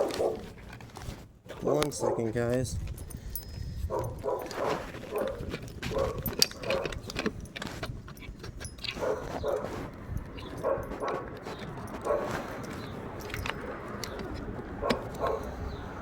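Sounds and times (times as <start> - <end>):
dog barking: 0.0 - 0.5, 1.6 - 2.4, 3.9 - 7.0, 8.9 - 9.8, 10.4 - 12.5, 14.8 - 15.6
keys jangling and clicking: 1.9 - 16.0.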